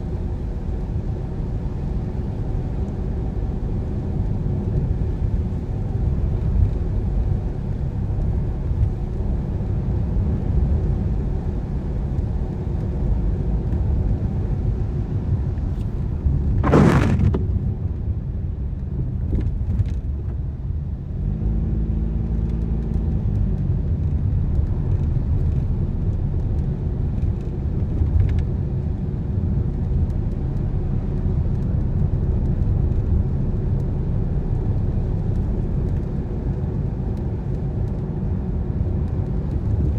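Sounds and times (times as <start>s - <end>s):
car on wet road: 0.0s - 39.9s
loud whoosh: 16.4s - 17.8s.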